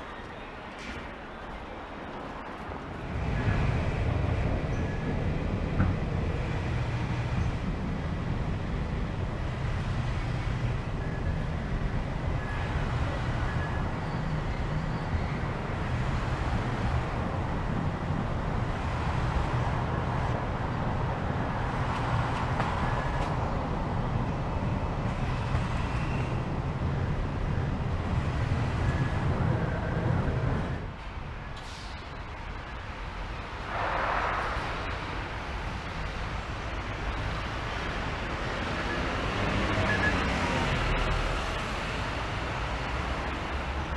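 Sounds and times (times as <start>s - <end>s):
road traffic rumble: 0.0s - 43.9s.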